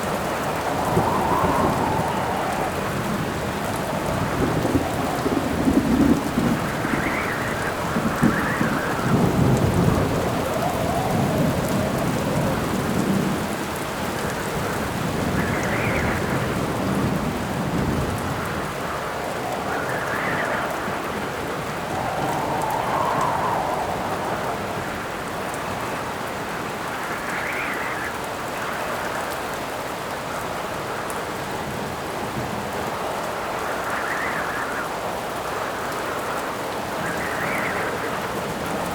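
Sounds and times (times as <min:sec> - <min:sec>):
thunder rumbling: 0:00.0 - 0:28.2
heavy rain: 0:00.0 - 0:38.9
wind howling: 0:00.0 - 0:38.9.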